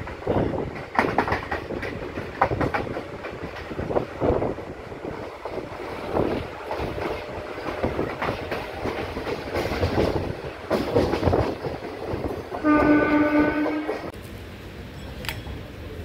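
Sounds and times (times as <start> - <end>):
train wheels clattering over joints: 0.0 - 14.2
train running rush: 0.0 - 16.0
train horn: 12.5 - 14.1.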